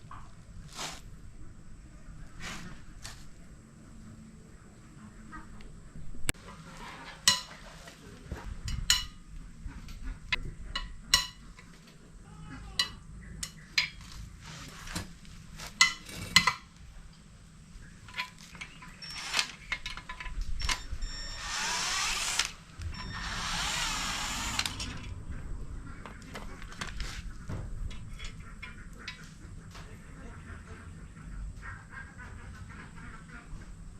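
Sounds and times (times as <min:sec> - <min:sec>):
power tool whirring: 0:19.0 - 0:19.7, 0:20.6 - 0:25.1.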